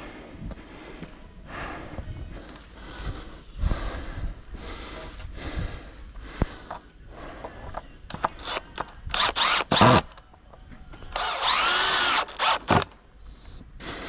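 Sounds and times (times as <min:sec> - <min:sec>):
power drill bursts: 0:08.4 - 0:10.1, 0:11.2 - 0:13.0.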